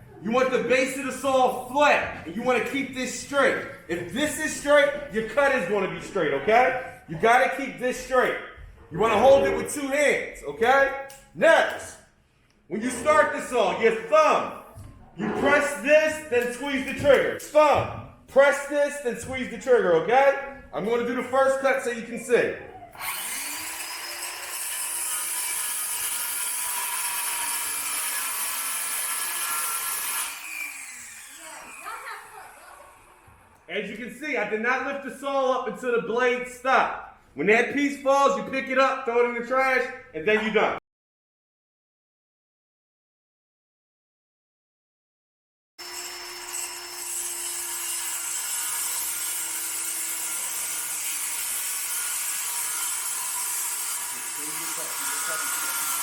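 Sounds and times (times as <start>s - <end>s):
circular saw cutting board: 23.0s - 33.5s, 45.8s - 56.0s.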